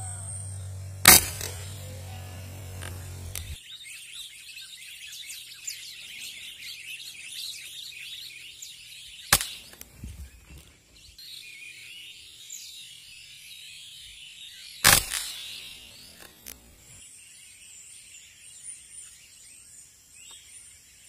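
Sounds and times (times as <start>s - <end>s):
flock of birds chirping: 0.0s - 21.0s
air rifle shot: 1.0s - 3.6s, 14.8s - 15.6s.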